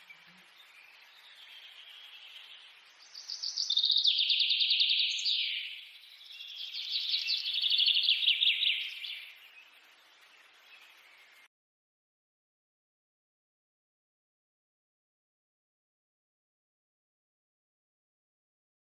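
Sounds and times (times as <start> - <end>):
bird singing high trills: 0.0 - 9.8.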